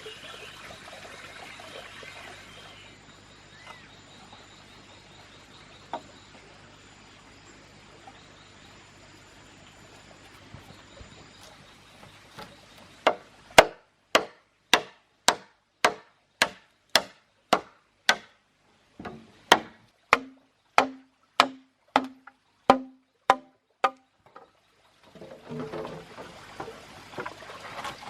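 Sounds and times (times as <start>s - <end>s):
sharp rhythmic knocks: 13.0s - 18.3s, 19.0s - 24.0s.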